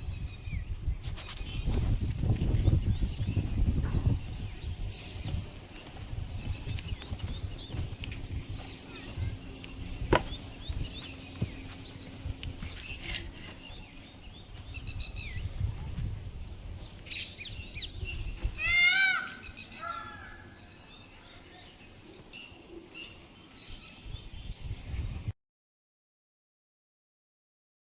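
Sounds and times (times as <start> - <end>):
bird chirps and calls: 0.0 - 25.2.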